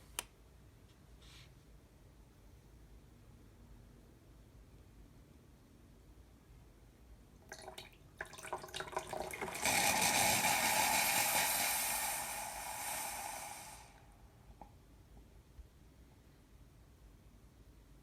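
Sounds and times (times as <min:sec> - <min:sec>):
coffee hissing and pouring: 0:08.2 - 0:14.3
espresso machine sputtering: 0:09.6 - 0:13.7.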